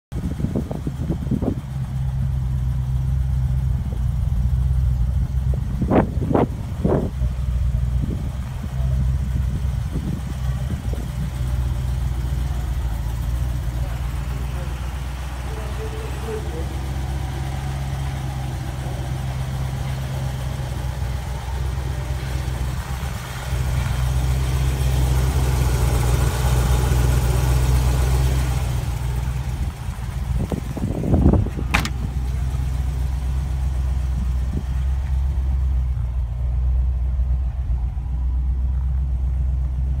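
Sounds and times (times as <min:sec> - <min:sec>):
car engine idling: 0:00.1 - 0:40.0
brief clunk: 0:31.7 - 0:32.1.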